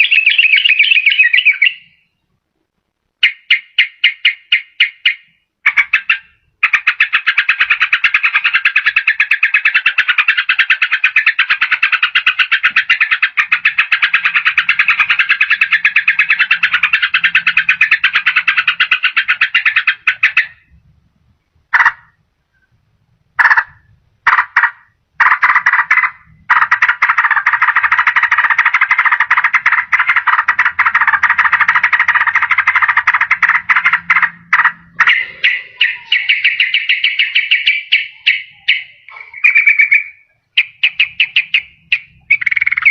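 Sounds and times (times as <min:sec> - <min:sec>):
fast even bird trill: 0:00.0 - 0:02.2, 0:03.2 - 0:20.8, 0:23.4 - 0:42.9
bird singing quick notes: 0:00.0 - 0:02.3, 0:31.6 - 0:42.9
short bird call: 0:35.0 - 0:42.9.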